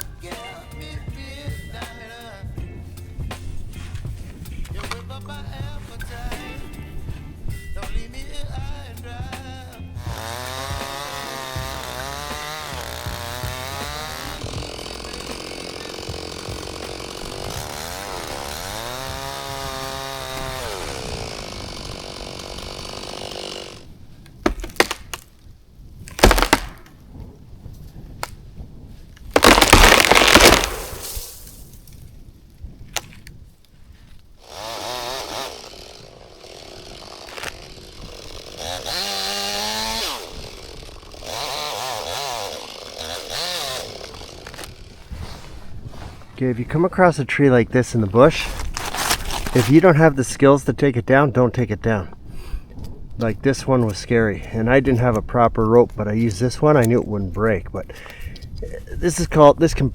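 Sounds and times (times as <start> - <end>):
chainsaw cutting wood: 3.3 - 6.7, 7.9 - 25.4, 26.1 - 26.9, 29.3 - 31.8, 34.3 - 45.8, 48.5 - 49.8
wood cracking: 4.6 - 6.2, 9.1 - 27.1, 29.2 - 32.2, 34.1 - 45.1, 48.2 - 50.1
tree crashing down: 10.2 - 23.8, 24.4 - 25.4, 26.0 - 27.0, 29.3 - 32.1.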